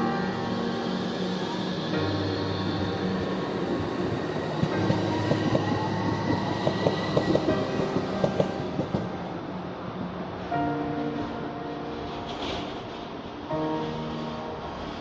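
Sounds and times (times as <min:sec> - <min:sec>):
passenger train running: 0:00.0 - 0:15.0.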